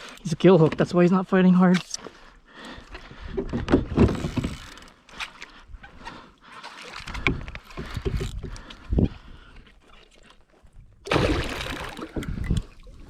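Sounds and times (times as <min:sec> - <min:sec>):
water splashing against kayak: 0:09.8 - 0:13.0.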